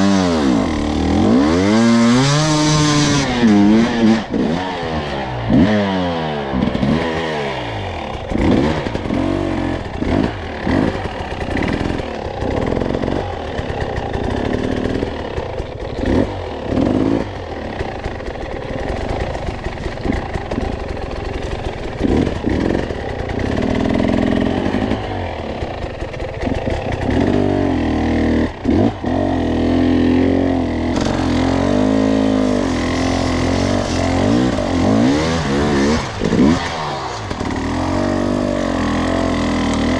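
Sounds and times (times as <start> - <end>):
dirt bike engine revving: 0.0 - 39.9
knocks and clatter from bike: 7.8 - 39.9.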